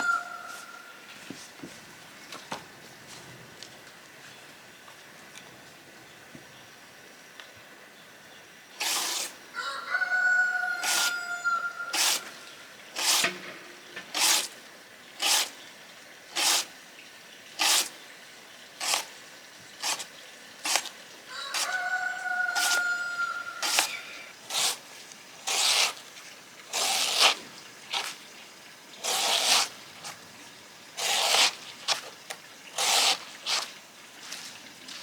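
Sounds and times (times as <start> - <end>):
rooster crowing: 0.0 - 0.9, 9.5 - 12.4, 21.3 - 24.0.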